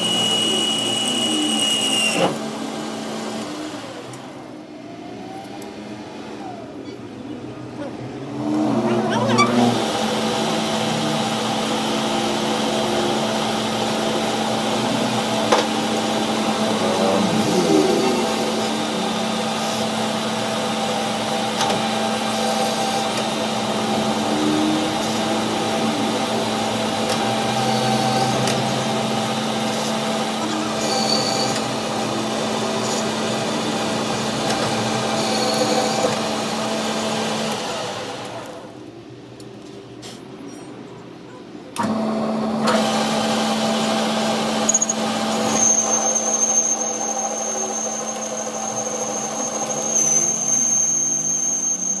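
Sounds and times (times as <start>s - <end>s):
power tool running: 0.0s - 4.5s, 8.4s - 38.7s, 41.8s - 52.0s
machine humming: 8.4s - 38.4s.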